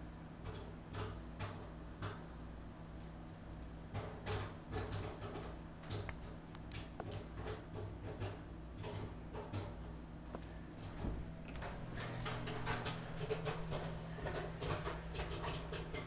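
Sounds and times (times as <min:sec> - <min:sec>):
low electrical hum: 0:00.0 - 0:16.0
animal eating crunching: 0:04.3 - 0:16.0.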